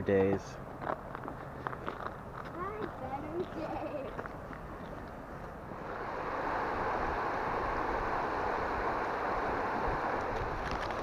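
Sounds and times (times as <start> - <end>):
wind buffeting microphone: 0.7 - 11.0
floodwater rushing: 5.7 - 11.0.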